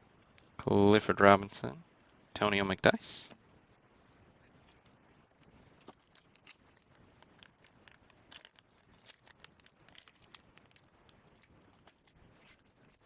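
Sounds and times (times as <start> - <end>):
trading cards clicking and rustling: 5.4 - 13.0.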